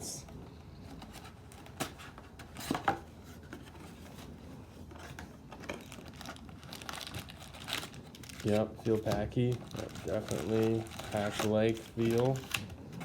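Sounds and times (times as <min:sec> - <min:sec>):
packaging crinkling and tearing: 0:05.0 - 0:13.0.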